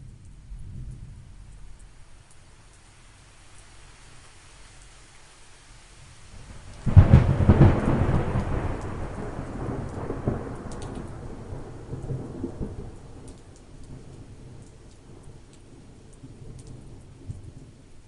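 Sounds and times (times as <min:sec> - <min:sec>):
steady light rain: 0:00.0 - 0:18.0
thunderclap rolling: 0:06.5 - 0:15.3.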